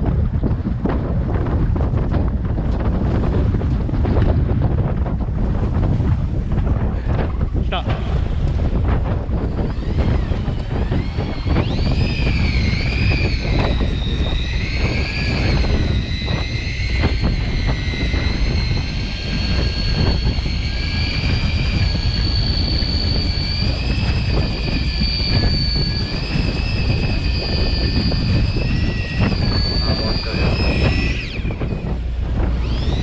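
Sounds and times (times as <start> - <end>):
boat engine rumbling: 0.0 - 33.0
wind: 0.0 - 33.0.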